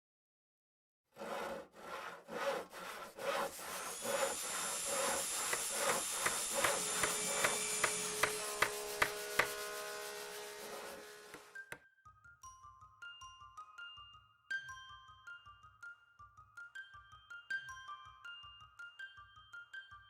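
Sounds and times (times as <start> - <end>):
hand tool rasping wood: 1.2 - 11.6.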